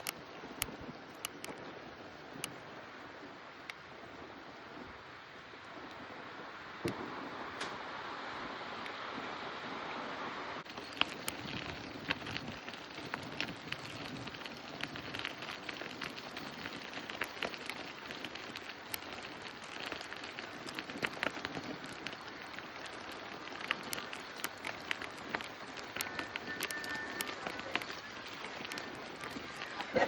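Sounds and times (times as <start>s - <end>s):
crackling clicks: 0.0s - 1.7s, 2.3s - 2.6s, 3.6s - 3.8s, 10.6s - 30.0s
steady hiss: 0.0s - 30.0s.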